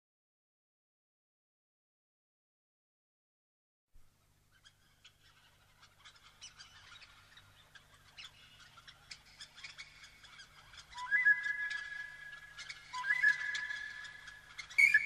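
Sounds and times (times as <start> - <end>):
birds chirping and twittering: 4.5 - 15.0.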